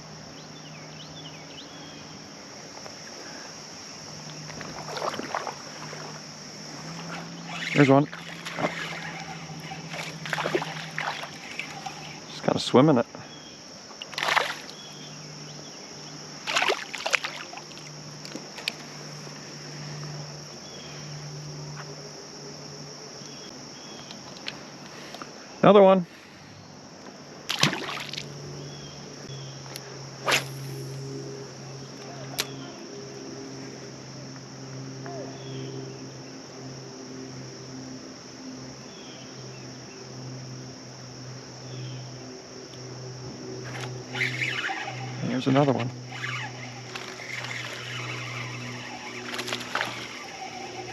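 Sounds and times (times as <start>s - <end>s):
high insect drone: 0.0s - 50.9s
steady low hum: 0.0s - 50.9s
handling or splashing bursts: 4.5s - 6.2s, 6.8s - 12.3s, 14.0s - 14.8s, 16.4s - 17.8s, 27.5s - 28.3s, 45.8s - 50.9s
flowing water: 4.5s - 12.4s, 14.0s - 14.8s, 16.4s - 17.9s.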